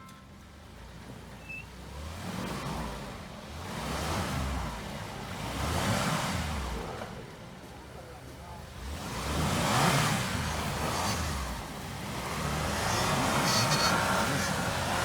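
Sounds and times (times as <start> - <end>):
engine revving: 8.7 - 15.0
tyres churning snow: 8.8 - 15.0.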